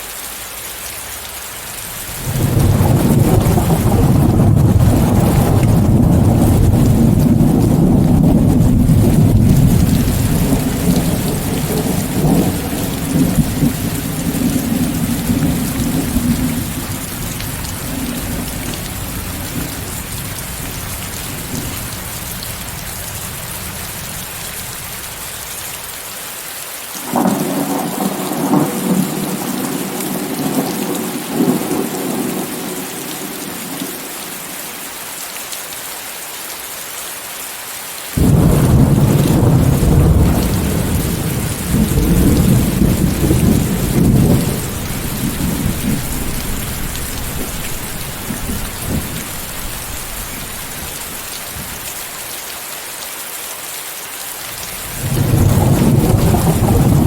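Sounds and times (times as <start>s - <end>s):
heavy rain: 0.0s - 57.0s
rolling thunder: 2.2s - 24.3s, 27.1s - 33.8s, 38.2s - 51.9s, 54.8s - 57.0s.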